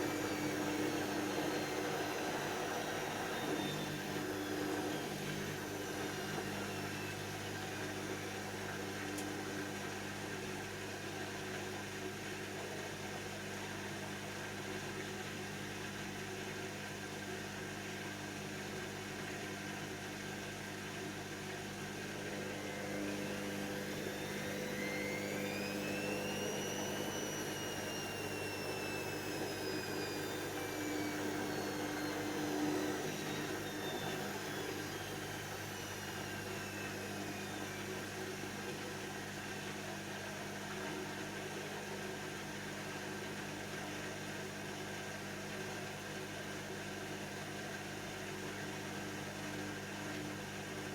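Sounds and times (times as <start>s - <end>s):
motor whine: 0.0s - 9.8s, 21.8s - 42.1s
washing machine humming: 0.0s - 50.9s.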